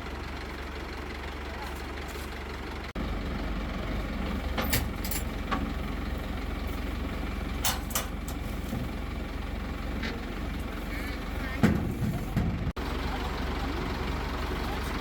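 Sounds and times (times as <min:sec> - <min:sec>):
crane engine rumbling: 0:00.0 - 0:15.0.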